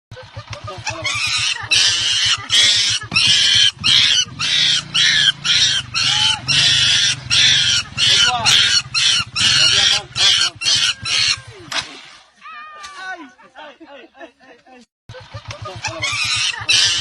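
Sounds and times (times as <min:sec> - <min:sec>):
baby monkey screaming: 0:00.8 - 0:11.5, 0:15.7 - 0:17.0.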